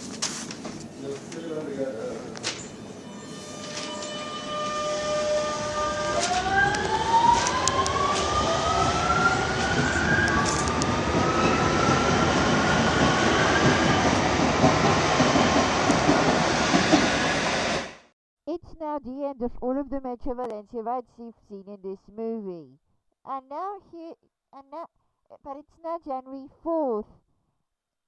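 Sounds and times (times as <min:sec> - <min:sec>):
electric train motor whine: 0:02.1 - 0:14.0.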